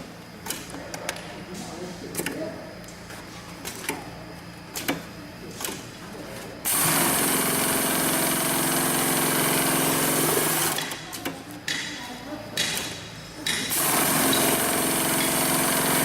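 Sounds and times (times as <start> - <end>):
sewing machine running: 6.7 - 11.0, 13.7 - 16.0.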